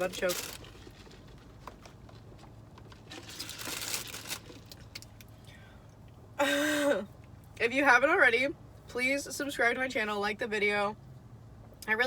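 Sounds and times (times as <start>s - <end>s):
food packaging rustling: 0.0s - 5.0s.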